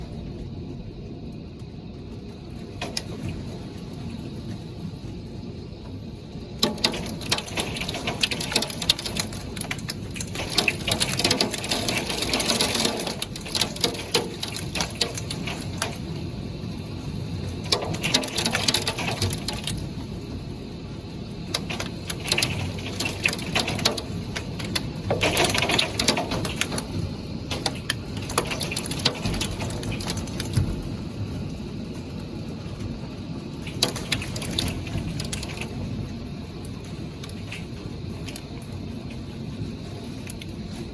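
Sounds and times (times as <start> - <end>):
heavy rain: 0.0 - 40.9
steady low rumble: 0.0 - 40.9
drops ticking on hard surface: 6.6 - 16.1, 17.6 - 19.8, 21.5 - 30.8, 33.7 - 35.7.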